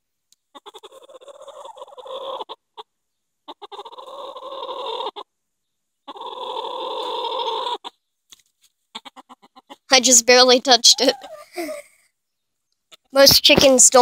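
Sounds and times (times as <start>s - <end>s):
hen squawking: 0.5s - 2.9s, 3.5s - 5.3s, 6.1s - 8.0s, 8.9s - 11.8s.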